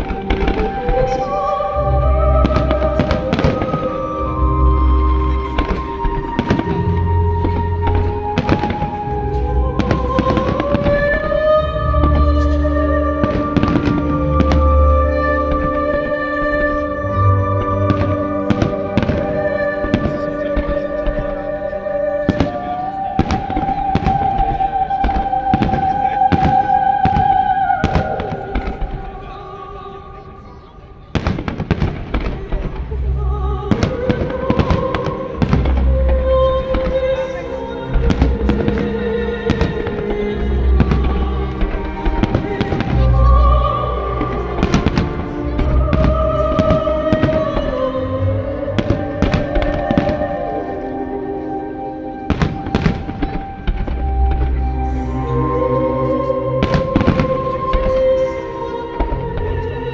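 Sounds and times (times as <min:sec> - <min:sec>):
music with long held note: 0:00.0 - 0:59.9
fireworks bangs: 0:02.4 - 0:04.3, 0:05.3 - 0:12.5, 0:13.2 - 0:16.9, 0:17.8 - 0:43.5, 0:44.2 - 0:48.0, 0:52.2 - 0:54.6, 0:56.2 - 0:58.3
fireworks booms: 0:05.3 - 0:11.4, 0:22.3 - 0:29.4, 0:31.1 - 0:37.0, 0:52.2 - 0:54.6, 0:56.6 - 0:58.2
loud music: 0:32.8 - 0:59.9.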